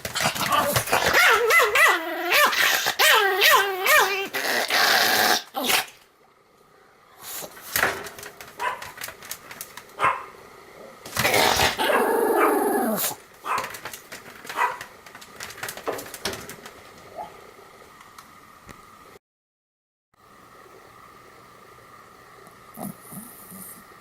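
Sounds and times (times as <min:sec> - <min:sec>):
small dog barking and yipping: 0:00.2 - 0:04.7, 0:08.6 - 0:09.0, 0:10.0 - 0:10.3, 0:11.6 - 0:13.7, 0:14.5 - 0:14.9
dog crying: 0:00.4 - 0:05.8, 0:11.5 - 0:13.6.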